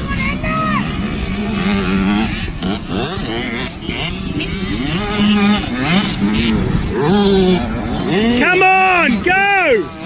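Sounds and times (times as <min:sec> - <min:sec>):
two-stroke motocross bike revving: 0:00.0 - 0:10.0.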